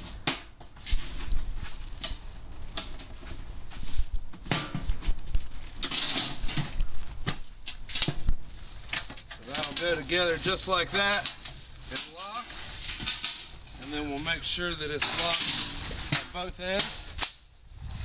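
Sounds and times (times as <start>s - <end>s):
sheet metal clicking and rattling: 11.1s - 13.8s.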